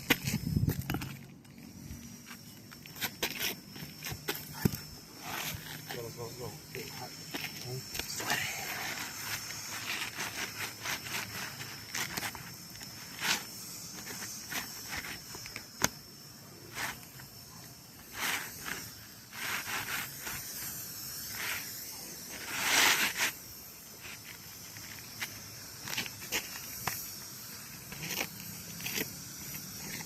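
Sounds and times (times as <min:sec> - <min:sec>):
hissing scrape of shingle: 0:00.0 - 0:30.0
roof shingles scraping and rustling: 0:06.7 - 0:15.6, 0:22.3 - 0:27.0.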